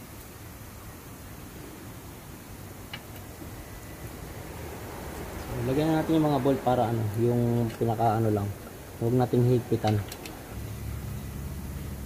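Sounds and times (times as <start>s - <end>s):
background hiss: 0.0s - 12.0s
light click of bolts: 9.8s - 10.4s.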